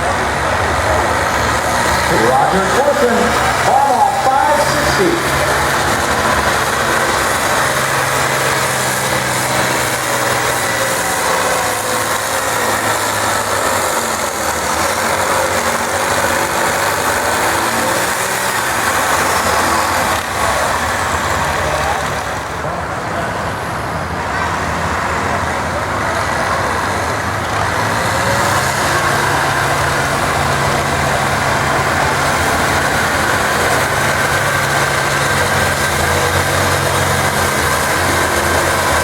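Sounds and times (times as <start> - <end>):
tractor engine running: 0.0 - 39.0.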